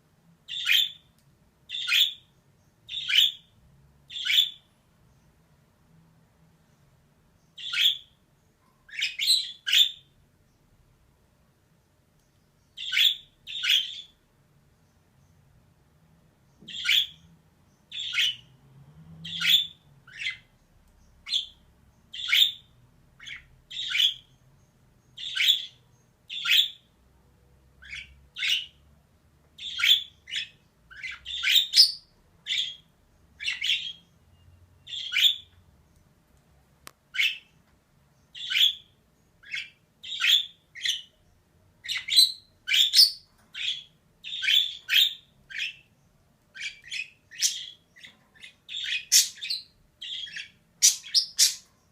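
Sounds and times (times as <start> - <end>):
budgerigar chirping: 0.5 - 1.1, 1.7 - 2.3, 2.9 - 3.5, 4.1 - 4.7, 7.6 - 8.2, 8.9 - 10.1, 12.8 - 14.2, 16.7 - 17.3, 17.9 - 18.5, 19.2 - 20.5, 21.2 - 24.4, 25.1 - 26.9, 27.8 - 28.8, 29.6 - 35.6, 37.1 - 37.6, 38.3 - 41.2, 41.8 - 45.9, 46.6 - 51.9.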